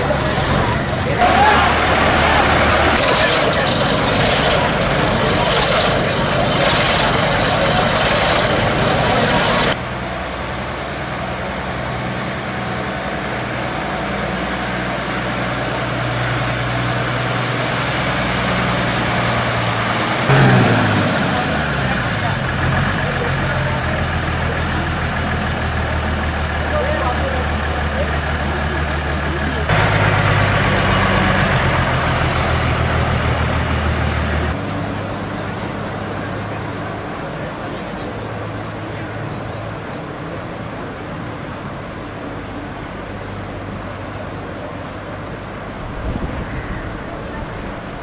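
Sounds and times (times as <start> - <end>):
dense rushing noise: 0.0 - 10.0, 45.5 - 48.0
broad rushing noise: 0.0 - 22.5
vehicle engine running: 0.0 - 48.0.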